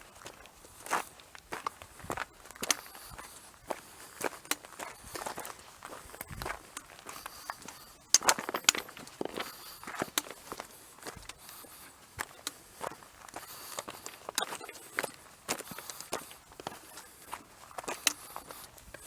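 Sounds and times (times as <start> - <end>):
footsteps on stony ground: 0.0 - 19.0.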